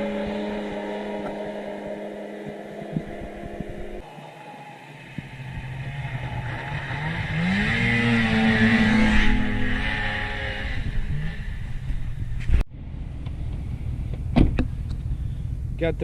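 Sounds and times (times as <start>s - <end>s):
small vehicle engine revving: 0.0s - 12.5s.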